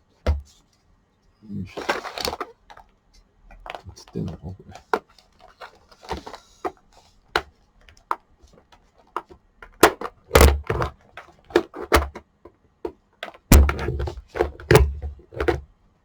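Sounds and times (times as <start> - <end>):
plastic housing clicking and knocking: 1.8 - 2.9, 3.5 - 6.8, 7.4 - 15.7.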